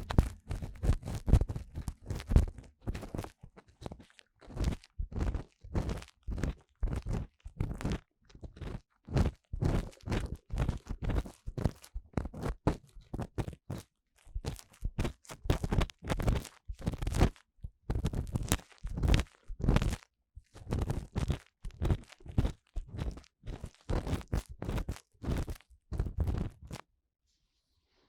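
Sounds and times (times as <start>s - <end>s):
tool scraping inside microphone ear: 0.0s - 1.8s.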